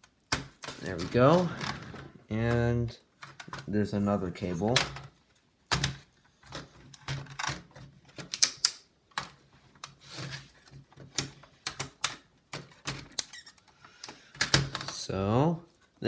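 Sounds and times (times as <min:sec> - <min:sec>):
laptop parts clicking and knocking: 0:05.7 - 0:10.0, 0:10.8 - 0:13.5.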